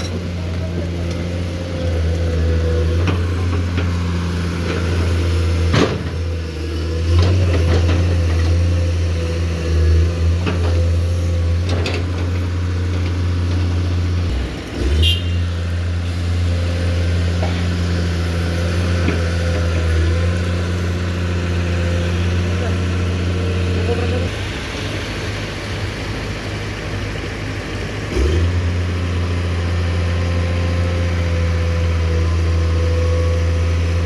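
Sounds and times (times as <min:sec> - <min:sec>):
excavator diesel engine running: 0:00.0 - 0:34.0
excavator bucket knocks and clanks: 0:05.6 - 0:06.3.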